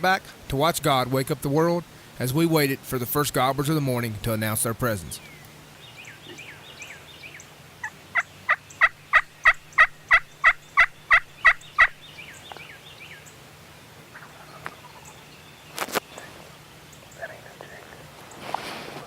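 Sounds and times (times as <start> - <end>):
songbird chirps: 0.0 - 19.0
turkey yelps: 7.8 - 12.0, 14.1 - 15.2.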